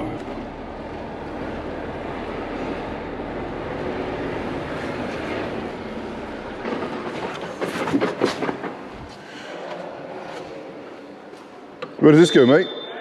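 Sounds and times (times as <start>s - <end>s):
truck engine rumble: 0.0s - 9.1s.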